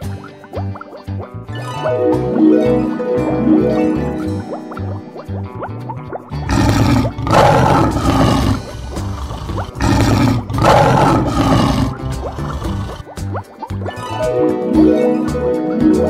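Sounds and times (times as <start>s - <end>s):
background music: 0.0s - 16.0s
cartoon lion roar: 6.4s - 13.1s.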